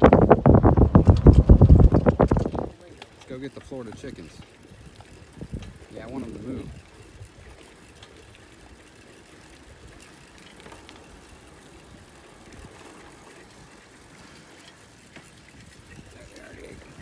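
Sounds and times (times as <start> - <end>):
faint ticks: 6.8 - 16.9.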